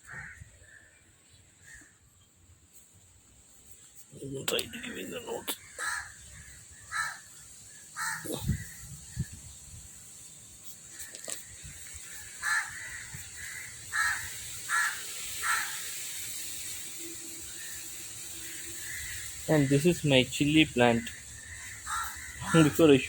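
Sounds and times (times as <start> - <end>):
crow cawing: 0.0 - 1.0, 5.6 - 8.8, 12.0 - 16.1, 17.5 - 19.8, 21.0 - 23.0.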